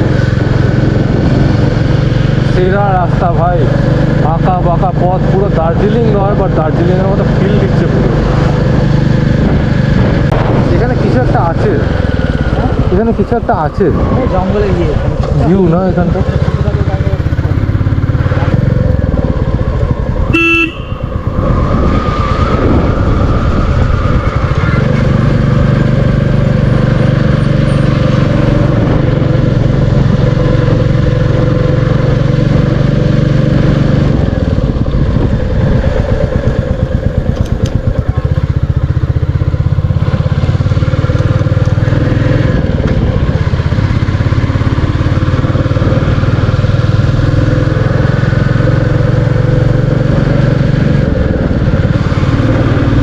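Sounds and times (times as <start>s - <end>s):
motorcycle engine running: 0.0s - 53.0s
short horn beep: 20.3s - 21.1s.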